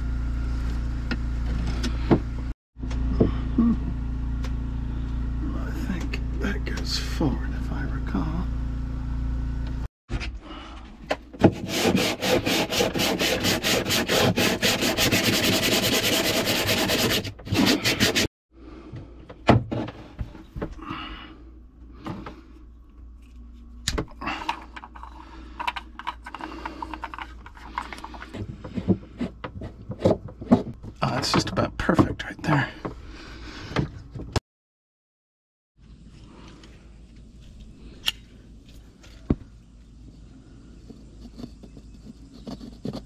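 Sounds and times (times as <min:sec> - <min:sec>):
rapid rasping strokes: 0:11.5 - 0:18.3.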